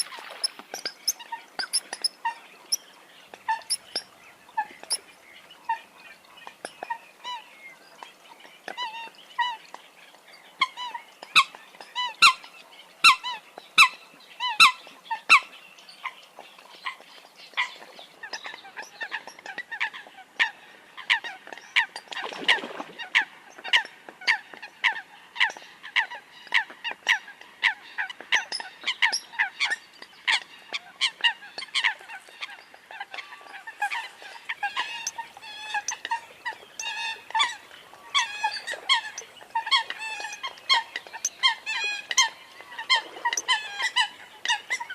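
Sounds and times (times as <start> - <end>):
coots calling: 0.0 - 5.1, 28.0 - 44.9.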